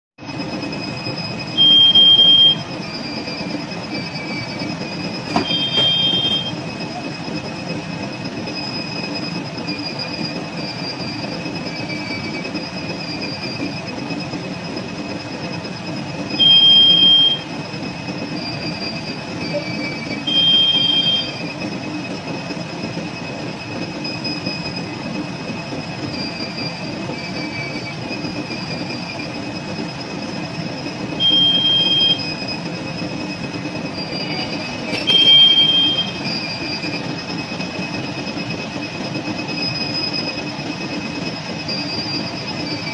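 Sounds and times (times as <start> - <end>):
high squealing tones: 0.2 - 42.9
short high-pitched beeps: 1.6 - 3.4, 5.3 - 6.9, 16.4 - 17.5, 31.2 - 32.4, 34.1 - 36.8.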